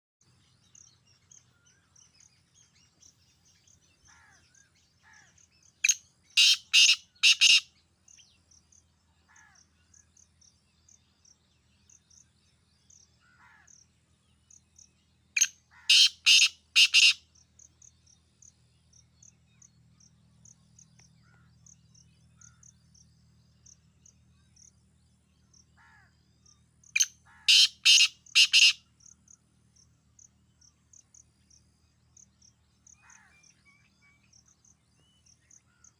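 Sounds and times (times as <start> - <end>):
faint insect chirping: 0.2 - 35.9
bird calling harsh notes: 5.8 - 7.7, 15.4 - 17.2, 27.0 - 28.9.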